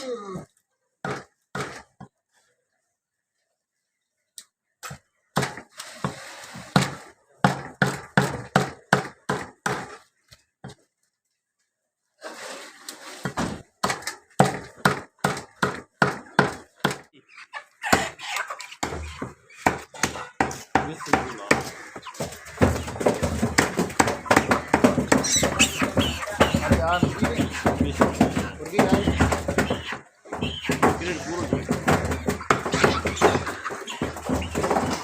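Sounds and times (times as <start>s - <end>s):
cleaver chopping chicken: 18.8s - 35.0s.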